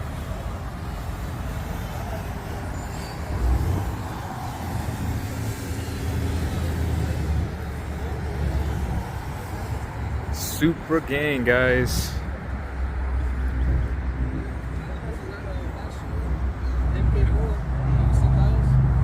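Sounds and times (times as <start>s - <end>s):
faint voices: 0.2s - 19.0s.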